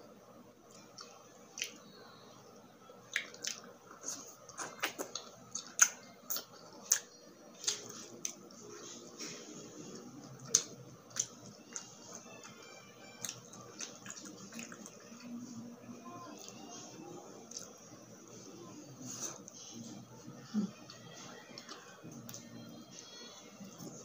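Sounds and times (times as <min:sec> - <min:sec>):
chewing: 0:00.7 - 0:01.8, 0:03.1 - 0:15.5, 0:17.3 - 0:17.8, 0:19.1 - 0:22.5
mouth and lip smacks: 0:04.5 - 0:07.8.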